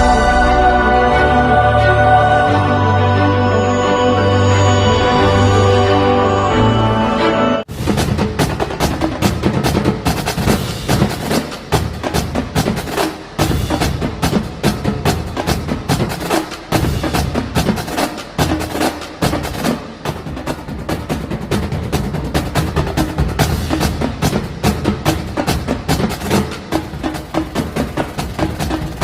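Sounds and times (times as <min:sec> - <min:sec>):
percussion music with clicky hits: 0:07.7 - 0:29.0.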